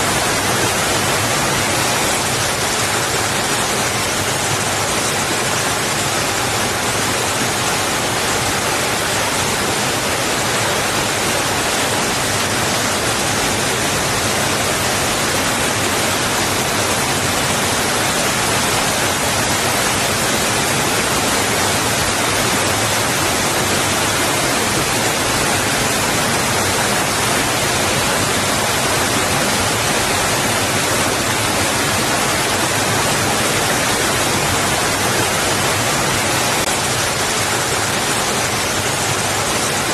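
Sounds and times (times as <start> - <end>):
water rushing against rocks: 0.0 - 39.9.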